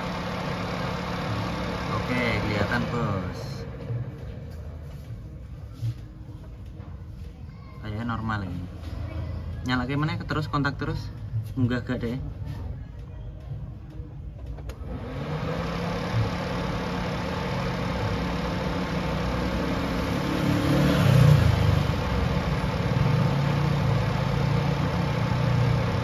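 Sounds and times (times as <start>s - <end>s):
car engine starting and idling: 0.0s - 6.8s, 13.7s - 26.0s
car engine revving: 14.7s - 26.0s.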